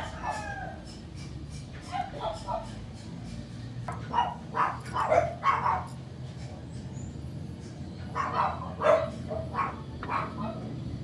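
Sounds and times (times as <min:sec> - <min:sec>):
dog barking: 0:04.1 - 0:05.9.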